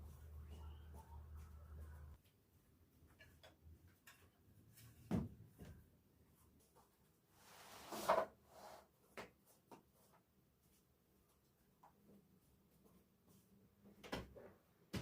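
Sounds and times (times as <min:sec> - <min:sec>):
scrape or rustle: 0:07.3 - 0:08.9.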